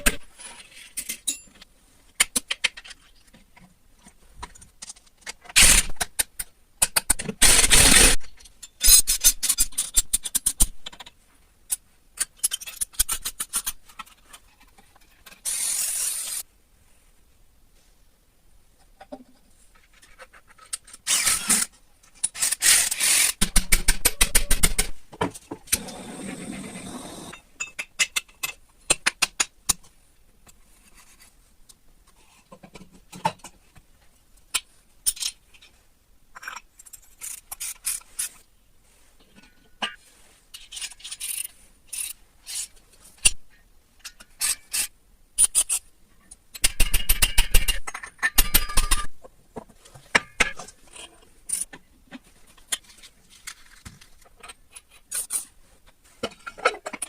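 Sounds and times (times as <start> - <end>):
scraping and rubbing: 12.6 - 16.4, 25.8 - 27.4.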